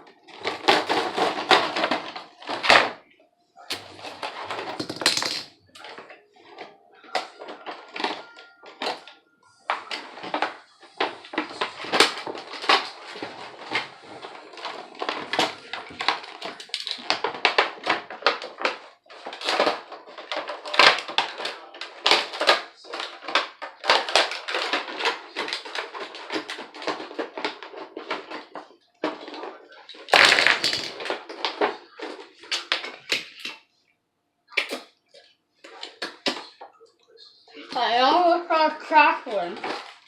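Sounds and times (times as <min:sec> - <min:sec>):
packaging crinkling and tearing: 0:09.8 - 0:33.6.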